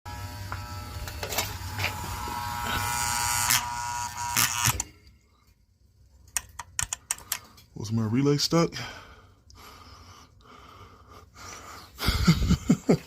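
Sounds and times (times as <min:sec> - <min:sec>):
electrical relay buzzing: 0:00.1 - 0:05.1.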